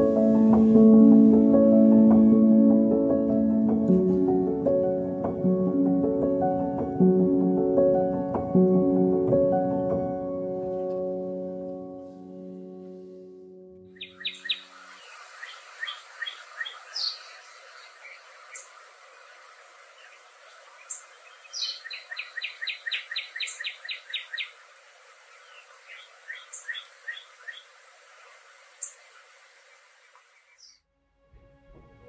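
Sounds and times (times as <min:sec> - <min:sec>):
songbirds chirping: 0:13.8 - 0:30.8
steady high hiss: 0:14.0 - 0:30.7.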